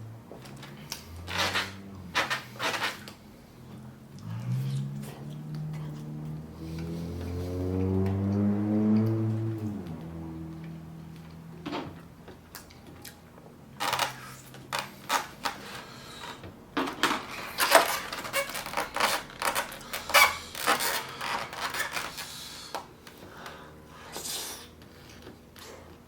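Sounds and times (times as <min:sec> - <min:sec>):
person chewing with mouth noises: 0:03.0 - 0:11.4, 0:12.3 - 0:13.3.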